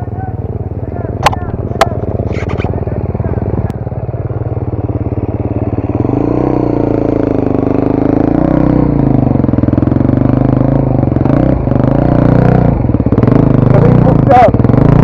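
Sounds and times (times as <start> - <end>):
off-road motorcycle engine revving: 0.0 - 15.0.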